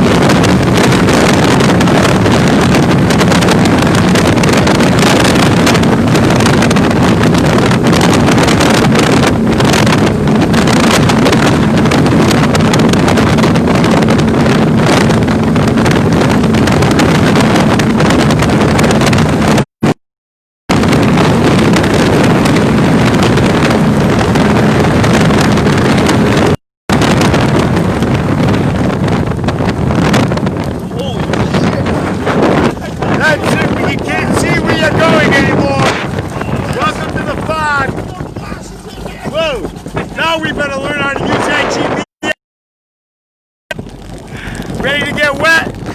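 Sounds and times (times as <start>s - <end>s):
boat engines running: 0.0s - 19.6s, 20.8s - 42.0s, 43.7s - 45.9s
wind buffeting microphone: 0.0s - 19.7s, 20.7s - 42.3s, 43.7s - 45.9s
rushing water: 21.0s - 41.2s.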